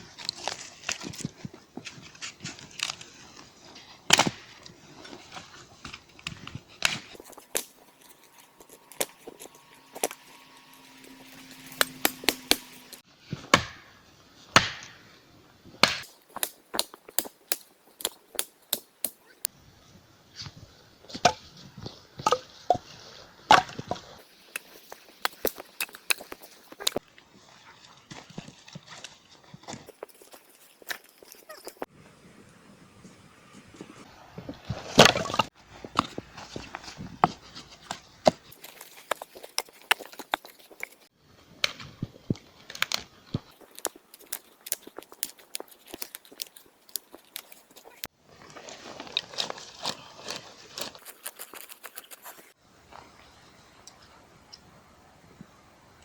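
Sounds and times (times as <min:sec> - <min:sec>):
wood chopping knocks and cracks: 0:04.1 - 0:04.6, 0:13.4 - 0:13.9, 0:14.6 - 0:15.0, 0:15.8 - 0:19.2.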